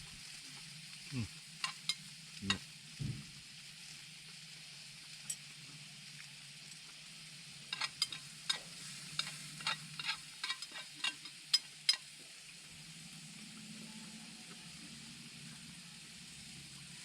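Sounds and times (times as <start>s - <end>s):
sizzling hiss: 0.0s - 12.6s.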